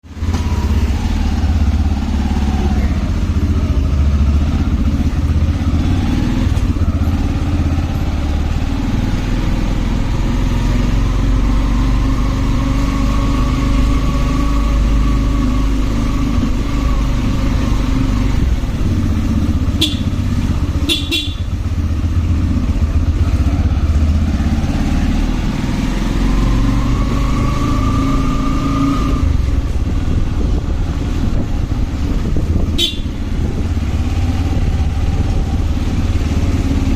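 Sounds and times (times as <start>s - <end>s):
motorcycle engine drone: 0.0s - 36.9s
wind and road noise: 0.0s - 36.9s
high-pitched horn toots: 19.8s - 20.2s, 20.8s - 21.6s, 32.8s - 33.2s.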